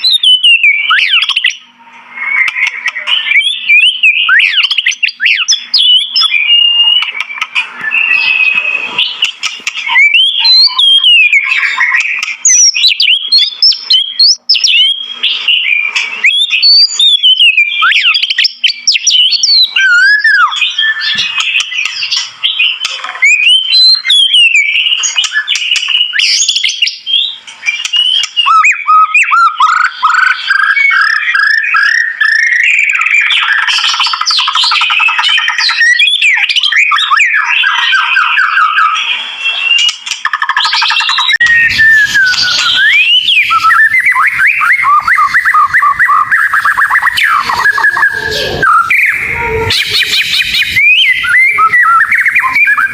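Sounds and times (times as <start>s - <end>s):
bird singing whistled notes: 0.0s - 39.9s, 40.6s - 52.9s.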